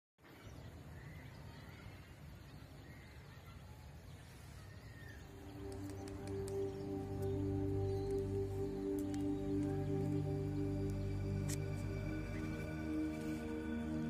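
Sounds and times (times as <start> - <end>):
soft bird chirps: 0.2 - 14.0
music with long held tones: 5.2 - 14.0.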